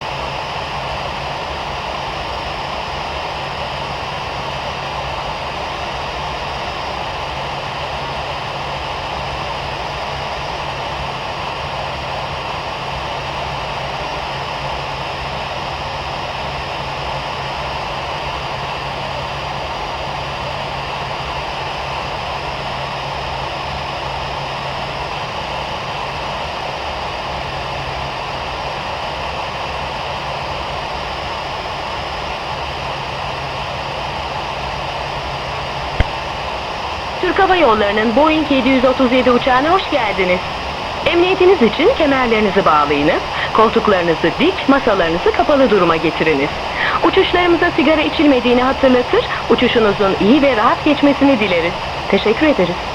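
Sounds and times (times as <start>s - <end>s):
constant low hum: 37.2s - 52.9s.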